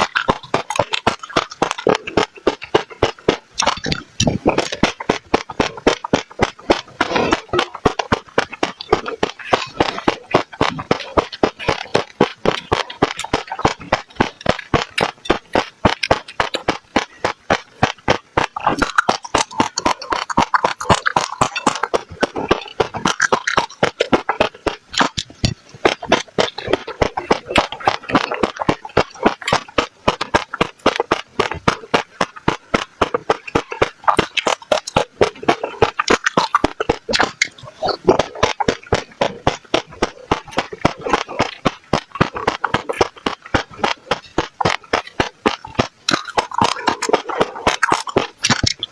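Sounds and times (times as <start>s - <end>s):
seeds crunched between teeth: 0.0s - 48.9s.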